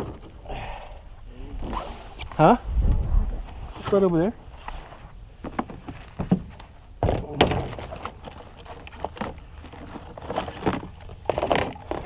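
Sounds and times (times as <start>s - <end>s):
rustling: 1.5s - 6.7s
knocks and thumps on a kayak: 5.4s - 12.0s.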